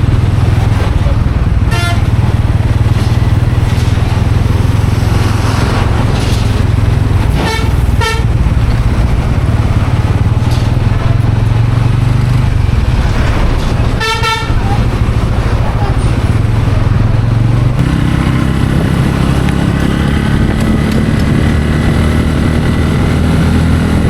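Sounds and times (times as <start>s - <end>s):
motorcycle engine running: 0.0s - 24.0s
horn honking: 1.6s - 2.4s, 7.3s - 8.6s, 13.8s - 15.0s.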